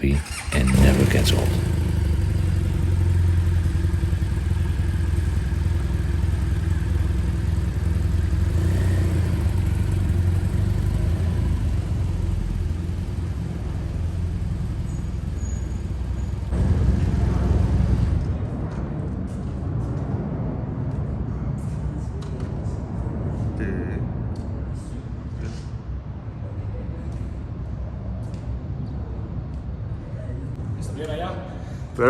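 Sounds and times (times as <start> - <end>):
road and wind noise: 0.0 - 32.0
motorcycle engine running: 0.2 - 19.9.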